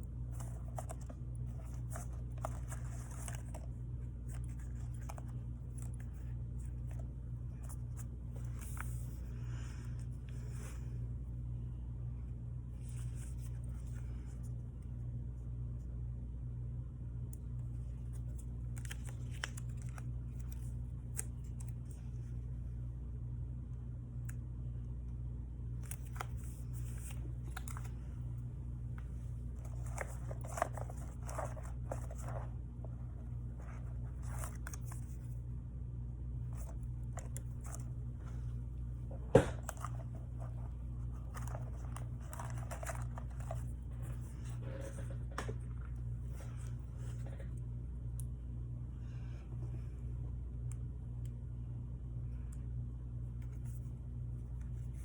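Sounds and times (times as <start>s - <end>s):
paper rustling and scratching: 0.0s - 10.9s, 12.8s - 14.6s, 17.8s - 22.4s, 25.8s - 35.4s, 36.4s - 47.6s
low electrical hum: 0.0s - 55.0s
paper rustling and clicks: 18.1s - 22.0s, 25.8s - 28.1s, 29.0s - 32.5s, 39.3s - 44.2s.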